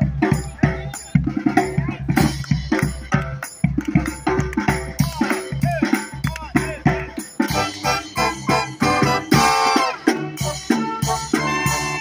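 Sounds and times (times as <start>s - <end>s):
drums and percussion: 0.0s - 12.0s
brass band playing: 4.2s - 12.0s.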